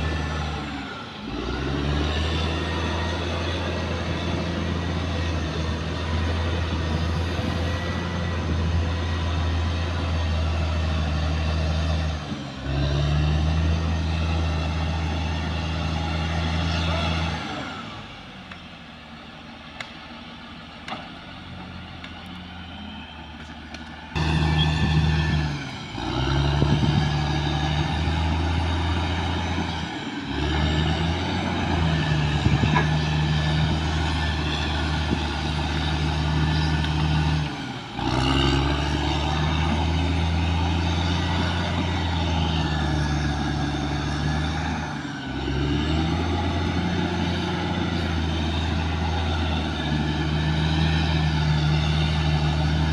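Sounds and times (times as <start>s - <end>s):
bulldozer diesel engine droning: 0.0s - 52.9s.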